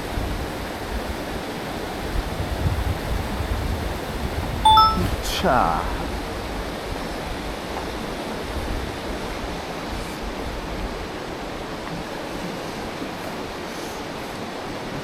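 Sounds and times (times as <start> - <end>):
wind rumble on microphone: 2.0 - 4.6.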